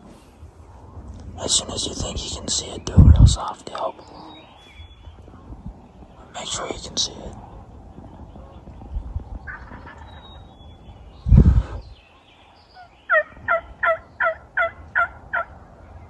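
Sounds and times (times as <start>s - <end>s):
turkey yelps: 13.1s - 15.6s.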